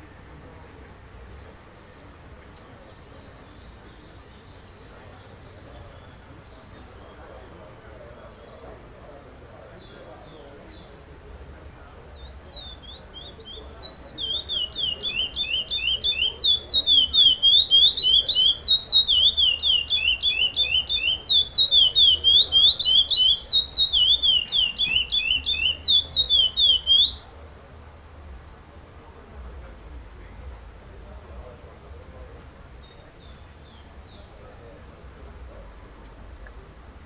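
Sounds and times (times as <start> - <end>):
finch singing whistles: 12.1 - 27.3.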